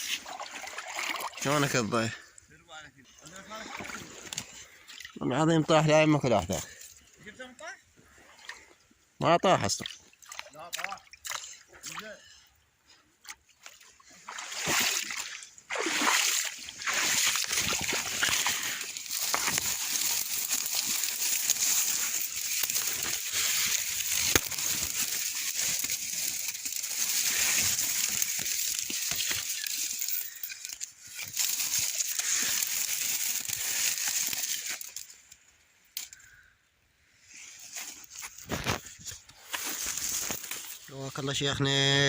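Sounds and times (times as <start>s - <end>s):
water sloshing and splashing: 0.0s - 2.1s, 3.2s - 5.3s, 9.7s - 12.1s, 13.1s - 35.4s
dense crackling rustle: 16.9s - 35.5s, 37.4s - 41.4s.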